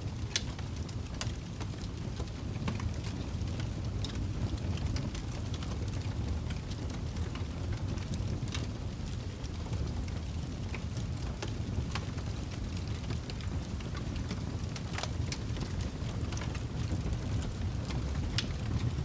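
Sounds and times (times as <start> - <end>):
fire crackling and popping: 0.0 - 19.0
fire rumbling in fireplace: 0.0 - 19.0.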